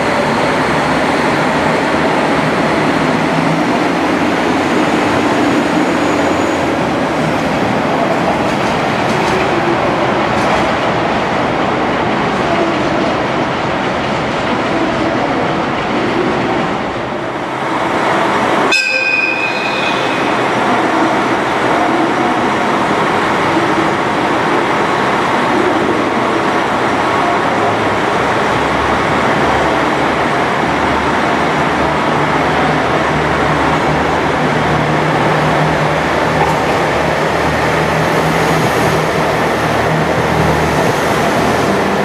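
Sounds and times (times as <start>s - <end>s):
train rumbling: 0.0s - 42.0s
high-pitched train toot: 18.7s - 21.4s.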